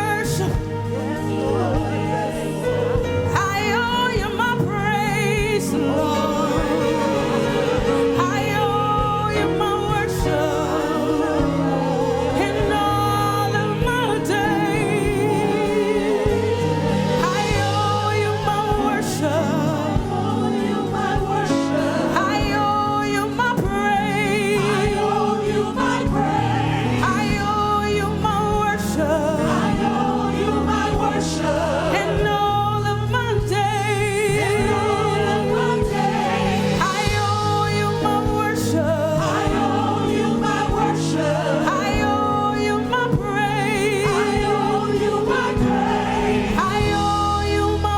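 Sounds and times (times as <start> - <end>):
band playing: 0.0 - 47.9
choir singing worship song: 0.0 - 47.9
steady drum beat: 0.3 - 42.2, 43.1 - 47.8.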